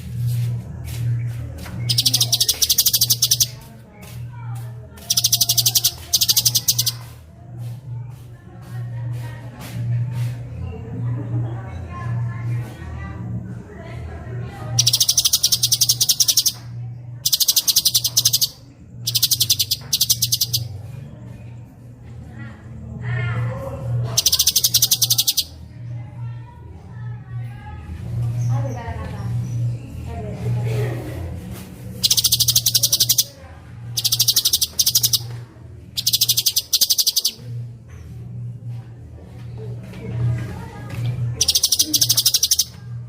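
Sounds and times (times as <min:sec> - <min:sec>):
steady low hum: 0:00.0 - 0:43.0
songbird rolling trill: 0:01.8 - 0:03.7, 0:05.0 - 0:07.1, 0:14.8 - 0:20.8, 0:24.2 - 0:25.6, 0:32.0 - 0:33.4, 0:34.0 - 0:35.4, 0:36.0 - 0:37.4, 0:41.4 - 0:42.8.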